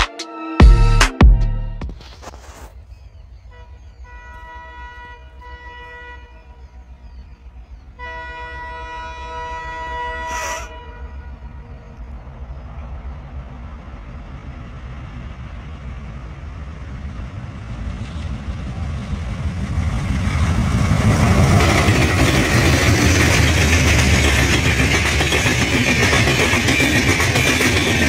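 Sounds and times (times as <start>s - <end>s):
train rumble: 1.8s - 28.0s
wheel-on-rail noise: 9.8s - 28.0s.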